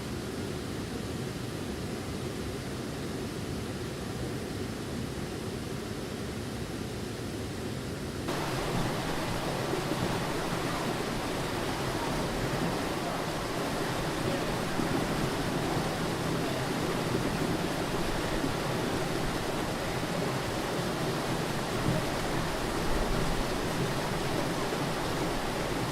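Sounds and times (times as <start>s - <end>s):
waterfall roaring: 8.3s - 25.9s.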